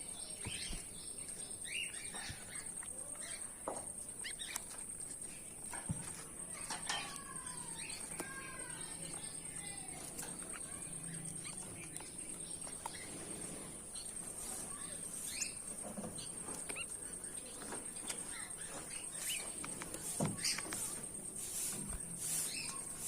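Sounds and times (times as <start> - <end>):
goldfinches chirping: 0.0 - 23.0.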